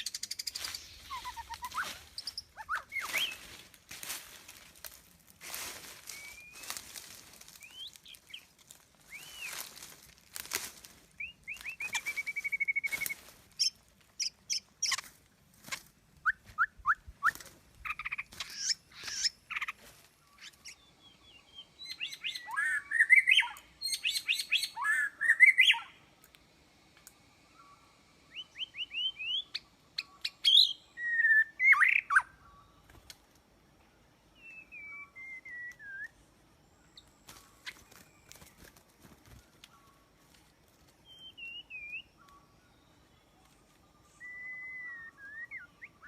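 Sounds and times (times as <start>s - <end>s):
bird singing whistles and trills: 0.0s - 3.5s, 6.0s - 9.8s, 11.2s - 15.0s, 20.3s - 26.0s, 27.6s - 33.0s, 34.3s - 38.7s, 41.0s - 43.1s, 43.8s - 46.0s.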